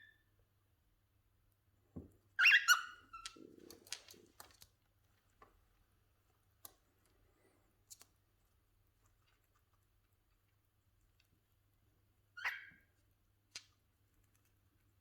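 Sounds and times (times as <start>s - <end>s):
cockatiels squawking: 2.4s - 3.3s.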